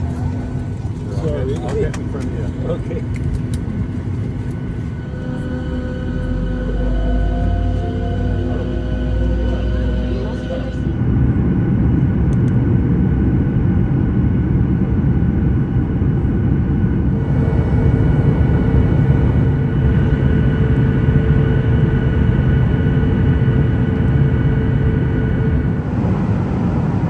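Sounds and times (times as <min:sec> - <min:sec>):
faint whining tones: 0:00.0 - 0:11.4, 0:17.2 - 0:26.8
airliner cabin drone: 0:00.0 - 0:27.0.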